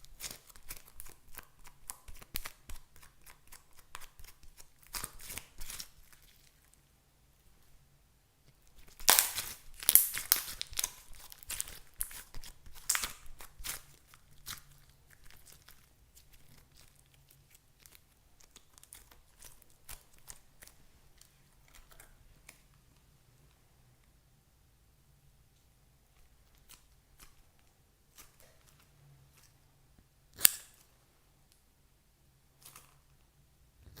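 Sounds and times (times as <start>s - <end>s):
crinkling and tearing: 0.0s - 6.8s, 8.7s - 22.6s.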